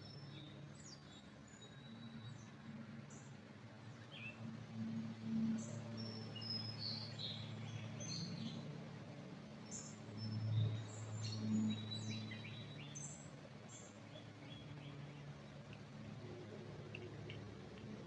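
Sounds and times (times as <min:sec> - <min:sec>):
low background hum: 0:00.0 - 0:18.0
songbirds chirping: 0:00.0 - 0:18.0.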